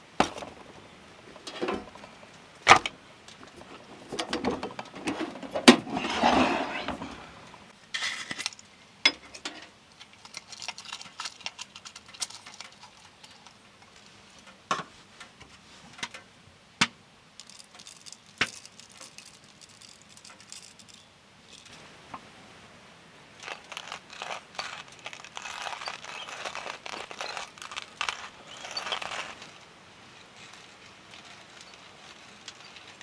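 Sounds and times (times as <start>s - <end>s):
light rustling: 0.0s - 7.7s, 23.3s - 33.0s.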